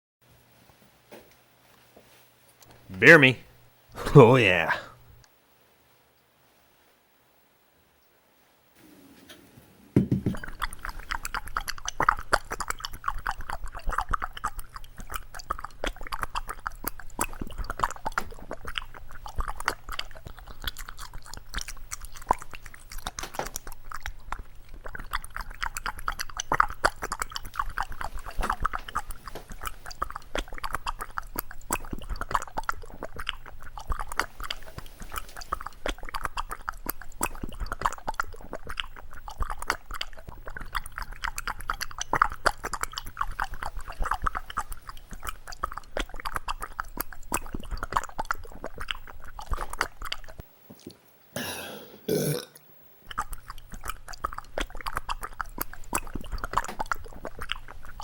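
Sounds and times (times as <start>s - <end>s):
cat lapping water: 10.2s - 50.5s, 53.0s - 58.0s.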